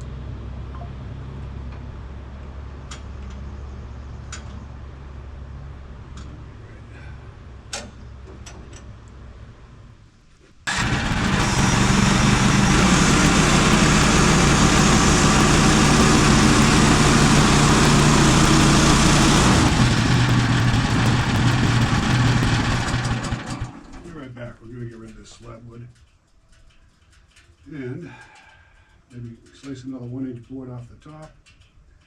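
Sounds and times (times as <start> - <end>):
sawmill engine running: 10.7 - 24.2.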